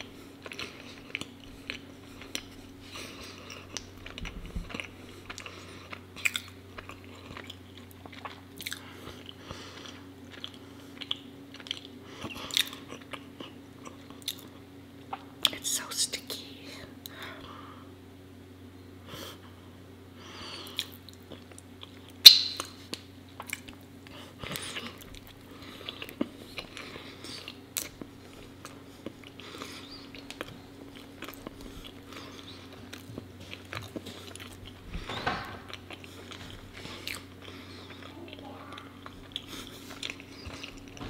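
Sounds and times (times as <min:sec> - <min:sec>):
bread being bitten: 0:00.0 - 0:15.3
sticky wet chewing: 0:00.0 - 0:15.7, 0:20.6 - 0:41.0.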